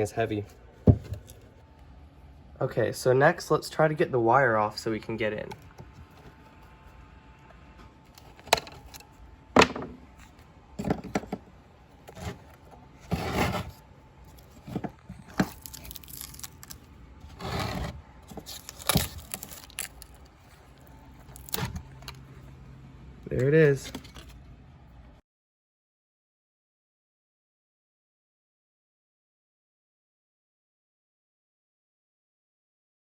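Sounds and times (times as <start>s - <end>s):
paper tearing: 15.2s - 20.3s, 21.2s - 22.2s.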